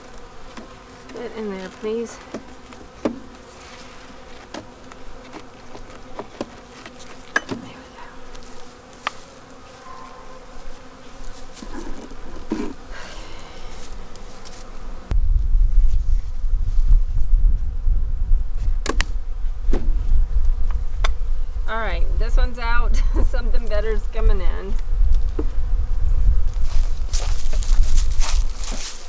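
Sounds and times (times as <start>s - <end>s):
honeybees buzzing: 0.0s - 15.2s, 16.0s - 29.0s
low rumble: 15.1s - 22.5s.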